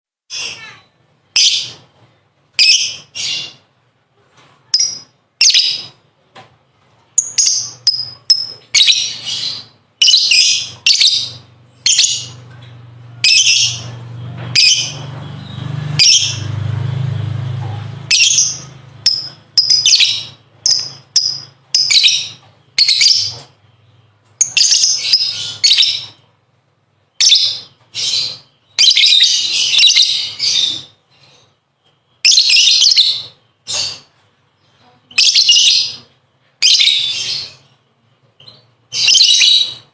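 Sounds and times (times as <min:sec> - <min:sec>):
lovebird chattering song: 0:02.6 - 0:03.6, 0:04.7 - 0:06.0, 0:07.2 - 0:16.6, 0:17.7 - 0:26.3, 0:27.1 - 0:31.5, 0:32.2 - 0:37.8, 0:38.4 - 0:39.9.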